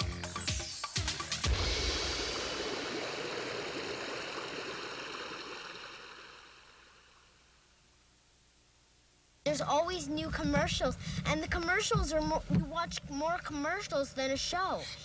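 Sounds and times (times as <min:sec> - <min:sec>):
steady rushing noise: 0:09.6 - 0:14.8.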